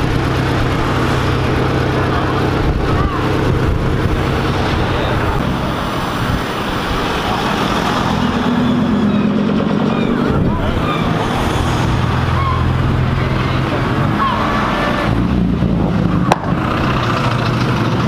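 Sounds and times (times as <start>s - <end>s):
car engines running at low speed: 0.0s - 18.0s
people talking: 0.8s - 8.0s, 8.6s - 11.7s, 12.3s - 15.2s.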